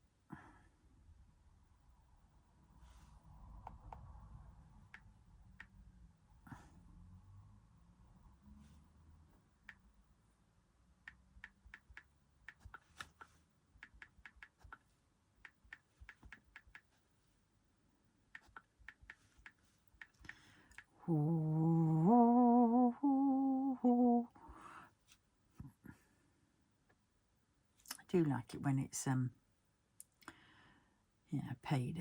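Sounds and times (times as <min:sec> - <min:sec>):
light irregular clicks and taps: 0:11.0 - 0:17.0, 0:18.3 - 0:21.0
person humming a tune: 0:21.0 - 0:24.5.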